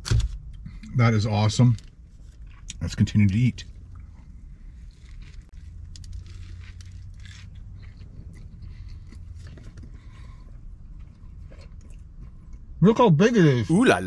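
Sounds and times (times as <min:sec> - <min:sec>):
person chewing sandwich: 0:02.1 - 0:02.8, 0:04.7 - 0:12.8
soft crunches and mouth clicks: 0:04.8 - 0:12.7.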